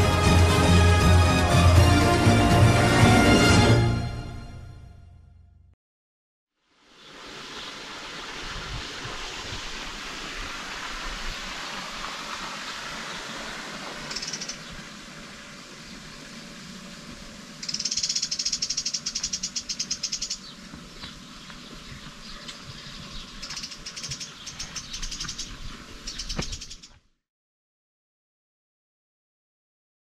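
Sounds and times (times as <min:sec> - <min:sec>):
steady outdoor hiss: 0:06.6 - 0:27.0
bird rapid trill: 0:14.0 - 0:14.8, 0:17.6 - 0:20.6, 0:22.2 - 0:27.0.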